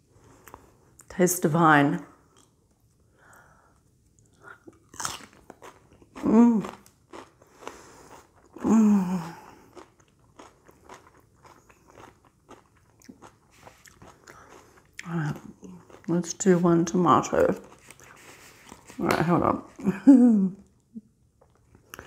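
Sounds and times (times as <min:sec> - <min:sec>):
crunchy chewing of cucumber: 0:04.3 - 0:19.0.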